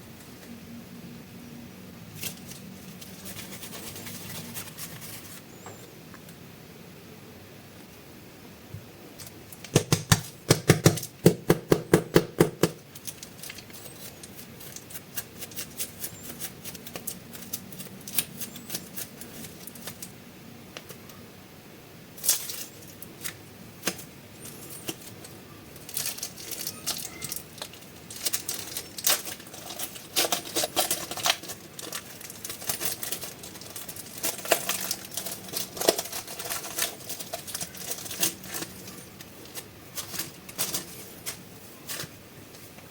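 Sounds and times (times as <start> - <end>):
plastic packaging crinkling: 2.2 - 5.5, 12.4 - 20.1, 22.2 - 42.9
plastic packaging clicking: 9.2 - 20.1, 22.2 - 42.1.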